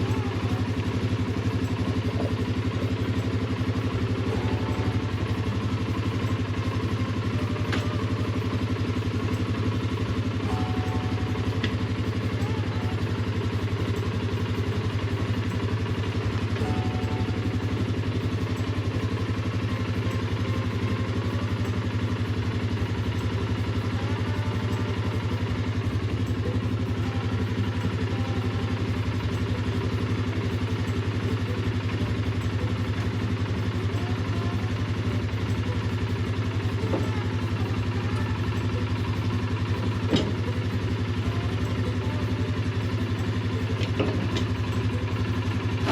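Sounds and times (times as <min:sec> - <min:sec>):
atv engine idling: 0:00.0 - 0:45.9.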